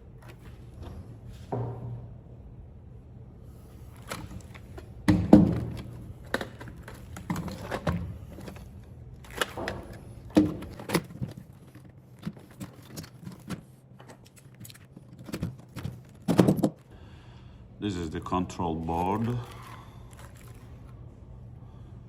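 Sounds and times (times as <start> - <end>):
plastic and metal parts knocking: 4.0 - 16.9.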